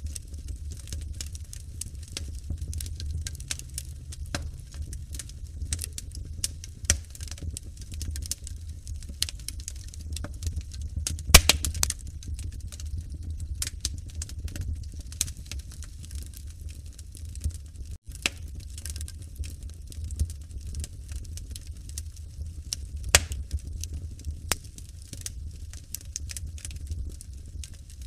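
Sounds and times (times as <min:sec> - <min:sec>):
fire crackling and popping: 0:00.0 - 0:28.0
low rumble of flames: 0:00.0 - 0:28.0.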